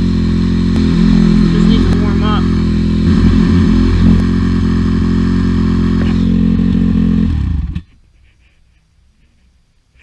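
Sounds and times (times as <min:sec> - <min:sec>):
dirt bike engine running: 0:00.0 - 0:07.9.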